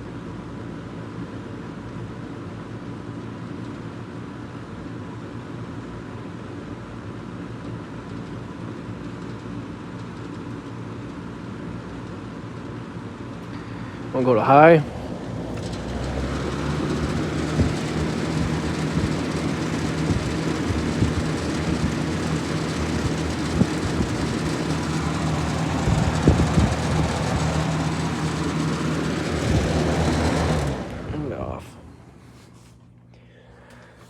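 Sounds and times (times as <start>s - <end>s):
box fan running: 13.4s - 34.0s
fan grill rattles: 14.2s - 32.4s.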